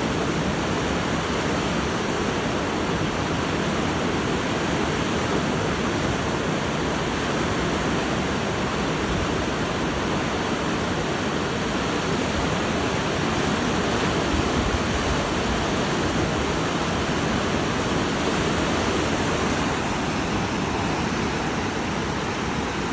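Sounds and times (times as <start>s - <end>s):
water rushing over rocks: 0.0s - 22.9s.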